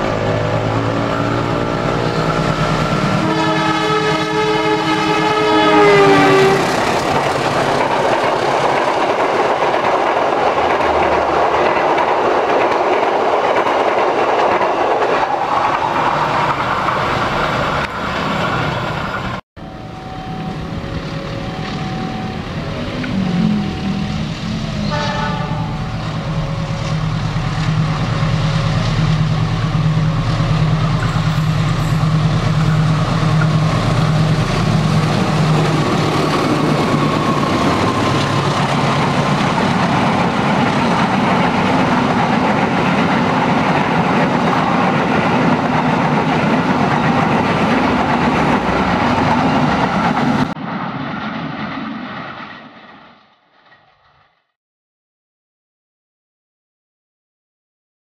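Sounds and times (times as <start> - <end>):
locomotive engine drone: 0.0 - 11.6, 15.2 - 51.4
train wheels clacking on rails: 0.0 - 19.4, 25.0 - 50.6
rushing noise of passing coaches: 0.0 - 53.1.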